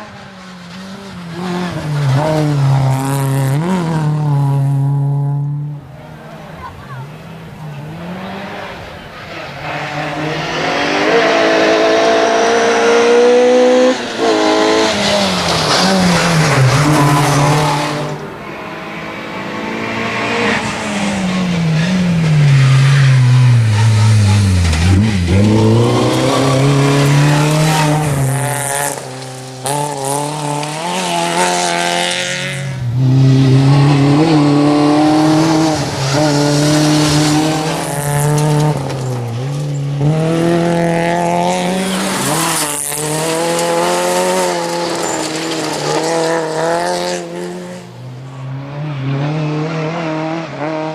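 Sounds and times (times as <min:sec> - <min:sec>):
rally car engine revving: 0:00.0 - 0:50.9.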